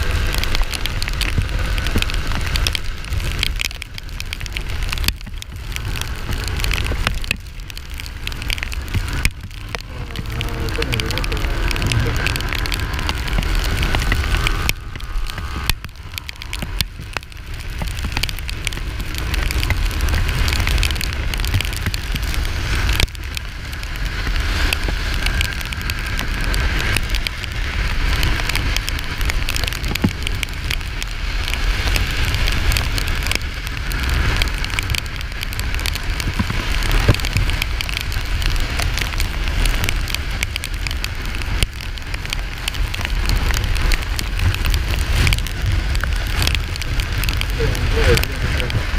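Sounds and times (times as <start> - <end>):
wind and road noise: 0.0 - 48.9.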